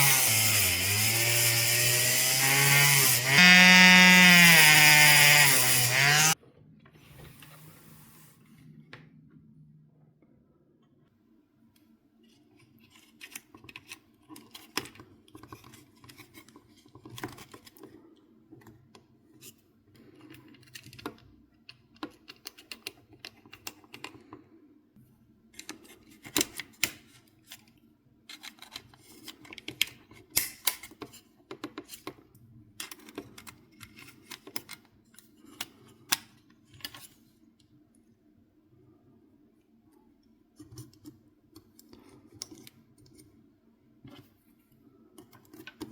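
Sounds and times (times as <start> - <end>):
small plastic and metal parts clicking: 28.3 - 32.2, 32.8 - 37.1.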